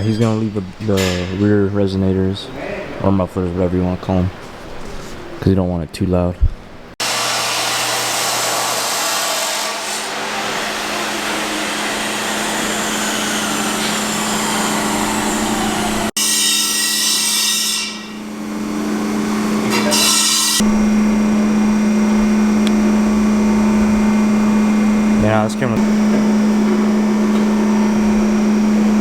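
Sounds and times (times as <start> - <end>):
power tool grinding metal: 7.0 - 29.0
low hum: 20.6 - 29.0.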